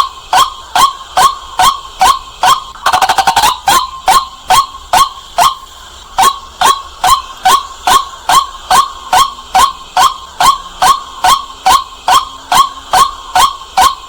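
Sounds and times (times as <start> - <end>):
waterhen calling: 0.0 - 14.0.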